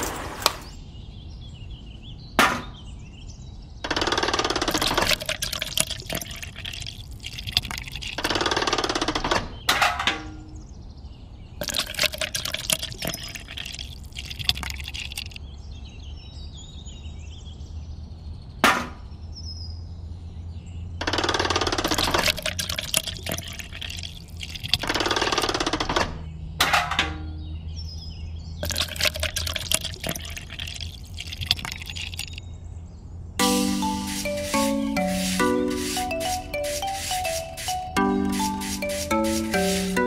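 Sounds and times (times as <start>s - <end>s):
wet cement pouring: 4.7s - 8.2s, 11.6s - 15.4s, 21.8s - 25.4s, 28.6s - 32.4s, 33.4s - 40.0s.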